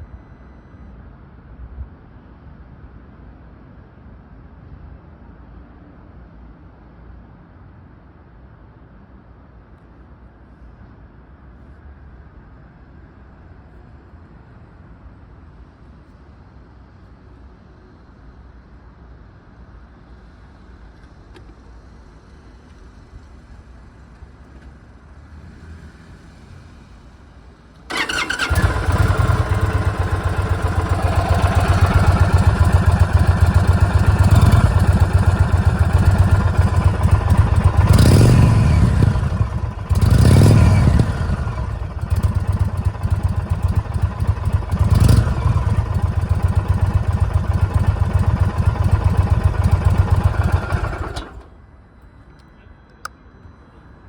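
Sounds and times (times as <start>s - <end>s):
motorcycle engine idling: 27.9s - 51.5s.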